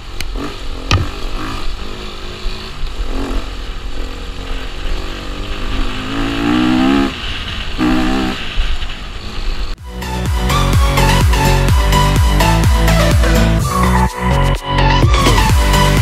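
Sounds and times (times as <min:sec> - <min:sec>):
motorcycle engine revving: 0:00.0 - 0:09.8.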